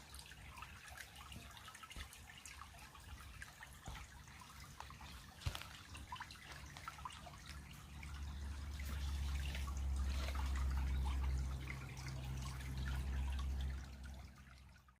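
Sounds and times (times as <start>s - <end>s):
creek water trickling: 0.0s - 15.0s
steady low rumble: 7.0s - 14.9s.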